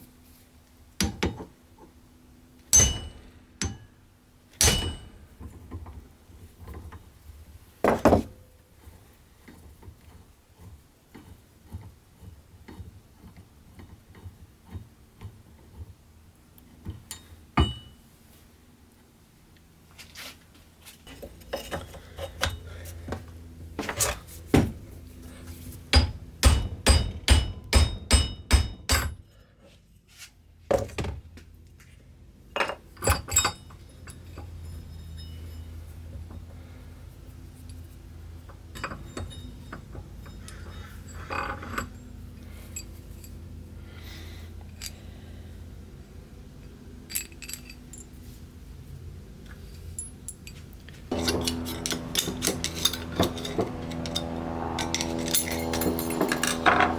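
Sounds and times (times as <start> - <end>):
low steady hum: 0.0 - 8.5, 21.0 - 56.9
metal tools clinking: 2.7 - 3.9, 4.6 - 5.5, 32.6 - 36.0, 38.8 - 43.4, 47.1 - 48.4, 49.5 - 56.9.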